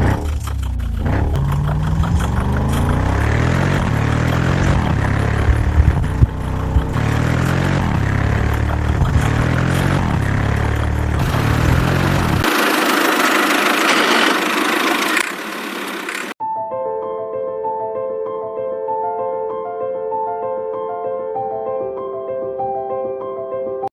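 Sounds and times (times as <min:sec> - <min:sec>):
sharp knocks: 0:00.0 - 0:12.5
engine revving: 0:00.0 - 0:16.4.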